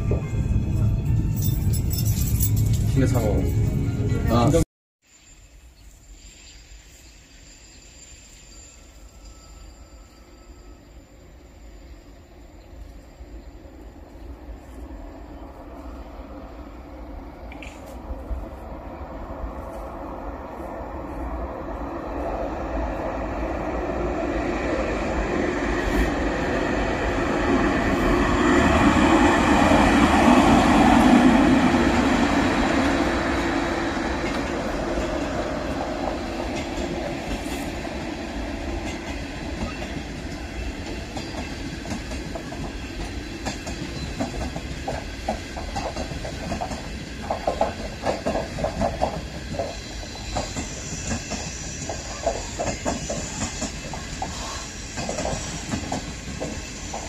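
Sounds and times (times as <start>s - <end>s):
wheels clicking over rail joints: 38.8s - 57.0s.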